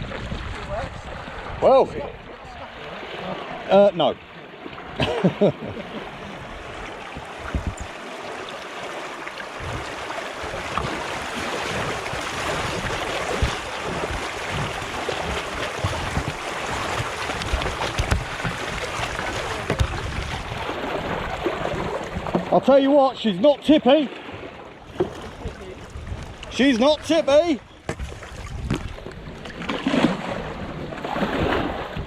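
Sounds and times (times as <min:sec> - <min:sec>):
water rushing: 0:00.0 - 0:32.0
low knocks against canoe: 0:05.8 - 0:08.0, 0:09.6 - 0:22.7, 0:24.3 - 0:26.6, 0:27.8 - 0:30.3.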